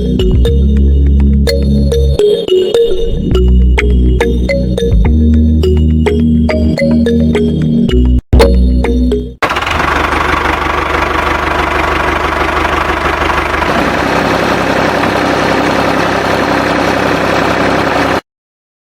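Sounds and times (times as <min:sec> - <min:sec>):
engine humming: 0:09.4 - 0:18.2.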